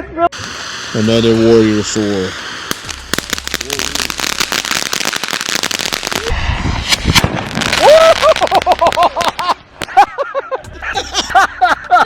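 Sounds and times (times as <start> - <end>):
firework crackling: 0.3 - 10.2
firework squeals: 0.4 - 9.5
firework bang: 2.5 - 10.0.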